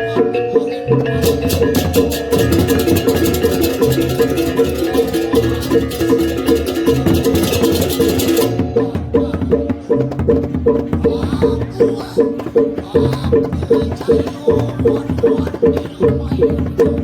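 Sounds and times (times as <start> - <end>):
pitched struck notes: 0.0 - 13.0
low drum: 0.0 - 17.0
cymbal-like clashing: 1.2 - 8.9.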